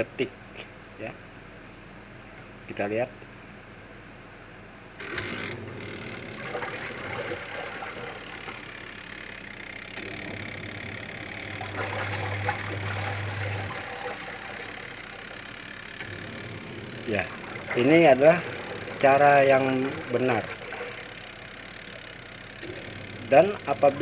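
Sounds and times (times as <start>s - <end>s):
wash timer turning: 5.0s - 24.0s
washing machine motor humming: 5.0s - 24.0s.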